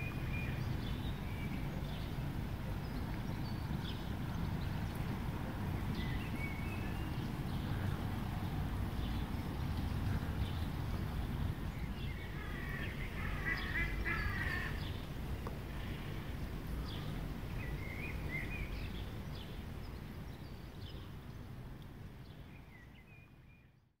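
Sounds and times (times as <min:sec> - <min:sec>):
low outdoor rumble: 0:00.0 - 0:22.7
birds calling: 0:09.5 - 0:15.1.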